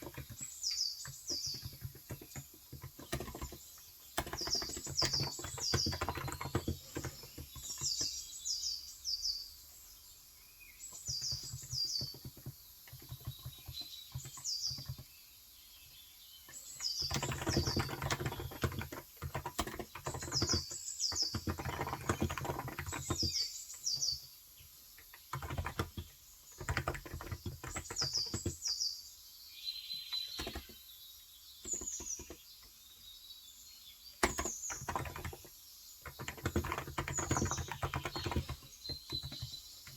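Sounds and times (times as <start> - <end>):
keyboard typing: 0.0 - 8.2, 11.1 - 15.1, 16.8 - 24.2, 25.1 - 28.7, 30.3 - 30.8, 31.6 - 32.4, 34.2 - 39.9
bird chirping: 0.0 - 39.9.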